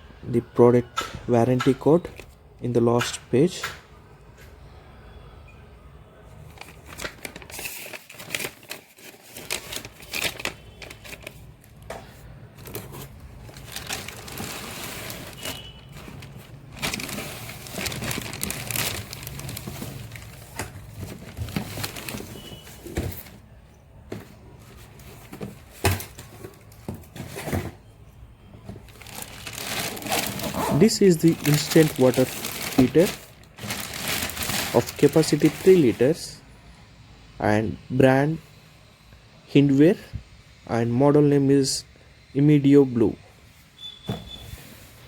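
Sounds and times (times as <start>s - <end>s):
packaging crinkling and rustling: 6.5s - 11.9s, 12.6s - 23.5s, 24.2s - 27.8s, 28.7s - 36.3s.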